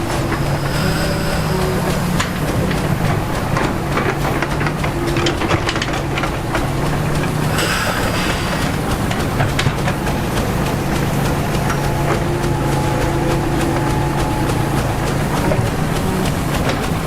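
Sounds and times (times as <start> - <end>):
diesel earth-moving machine running: 0.0 - 17.0.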